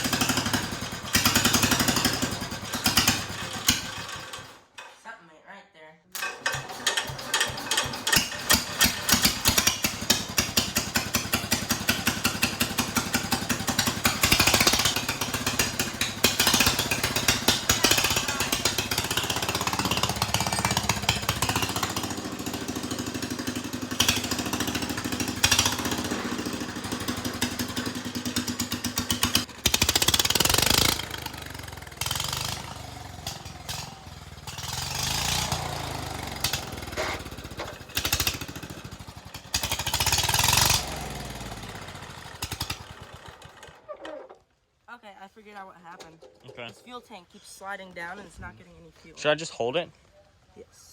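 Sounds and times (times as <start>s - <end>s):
tractor engine running unevenly: 0.0s - 4.6s, 6.2s - 44.5s.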